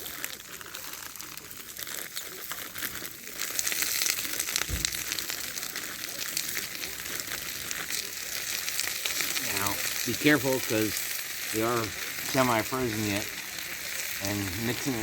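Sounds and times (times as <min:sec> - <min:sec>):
plastic bag crinkling: 0:00.0 - 0:08.2
vegetables sizzling in hot oil: 0:00.0 - 0:15.0.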